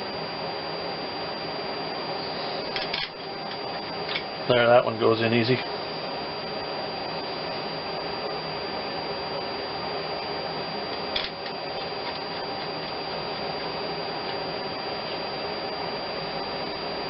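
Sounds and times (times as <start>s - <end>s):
machine-like hiss: 2.1s - 3.0s.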